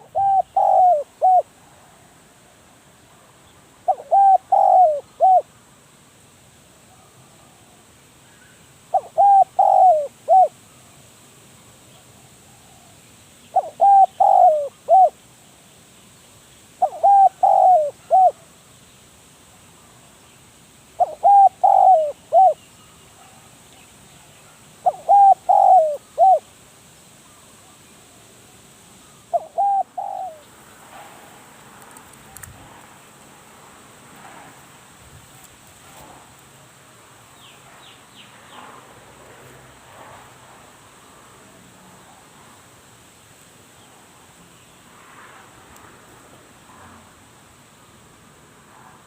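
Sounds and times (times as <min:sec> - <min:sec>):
dove cooing: 0:00.0 - 0:01.5, 0:03.9 - 0:05.5, 0:08.9 - 0:10.5, 0:13.5 - 0:15.2, 0:16.8 - 0:18.4, 0:21.0 - 0:22.6, 0:24.8 - 0:26.5, 0:29.3 - 0:30.5.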